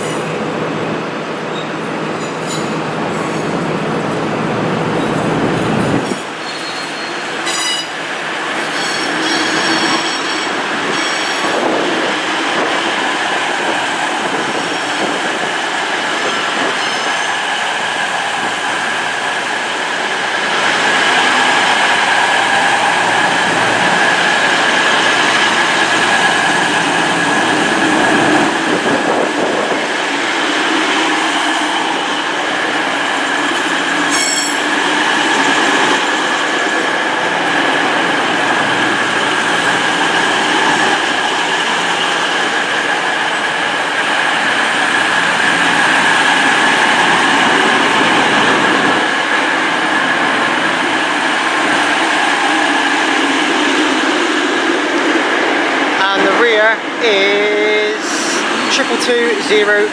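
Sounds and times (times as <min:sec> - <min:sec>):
train rumble with high whine: 0:00.0 - 0:59.9
wheel squeals: 0:06.4 - 0:07.9.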